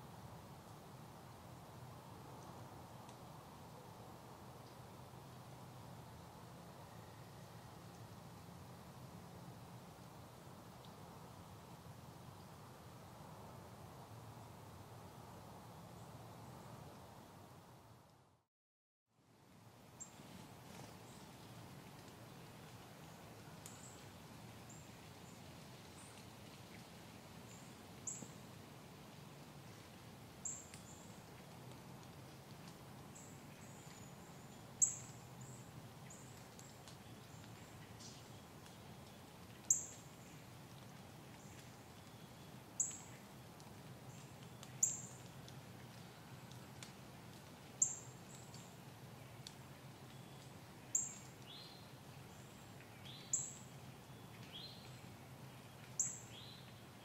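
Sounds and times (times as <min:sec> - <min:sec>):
faint woodland background: 0:00.0 - 0:18.5, 0:19.1 - 0:57.0
small bird chip calls: 0:44.1 - 0:45.2.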